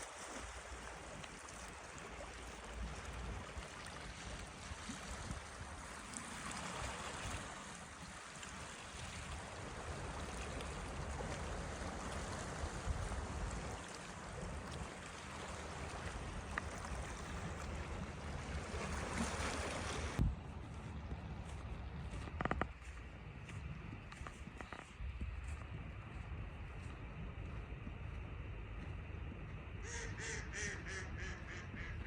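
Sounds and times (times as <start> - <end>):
rushing water: 0.0 - 22.9.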